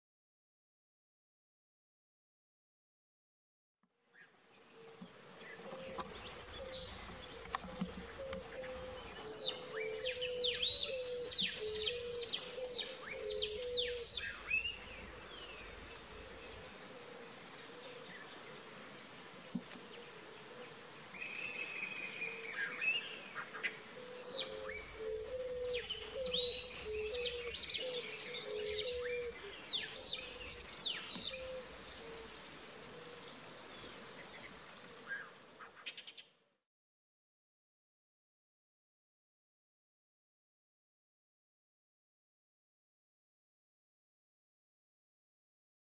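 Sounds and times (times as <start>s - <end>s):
wild birds chirping and calling: 4.1s - 36.4s.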